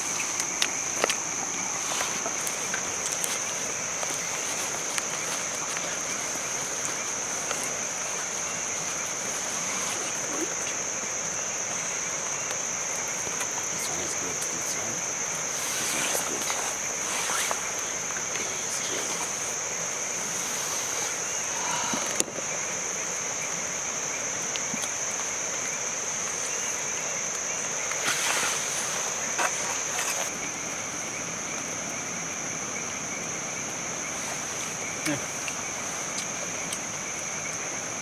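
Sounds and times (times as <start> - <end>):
rustling: 0.0 - 13.9, 15.0 - 22.6, 24.4 - 30.4
insects trilling: 0.0 - 38.0
rain hiss: 0.0 - 38.0.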